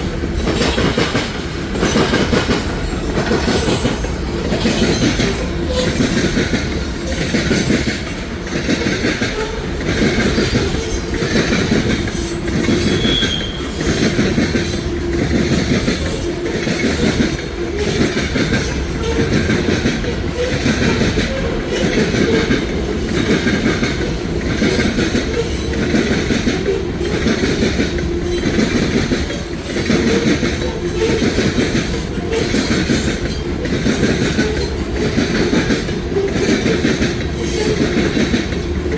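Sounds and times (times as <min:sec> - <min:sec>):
freight train wheels clickety-clack: 0:00.0 - 0:38.9
faint wheel squeal: 0:12.8 - 0:13.8.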